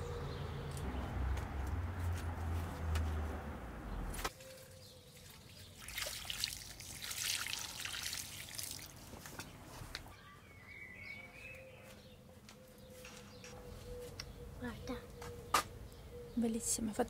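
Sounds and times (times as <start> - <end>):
water trickling and pouring: 4.4 - 9.4.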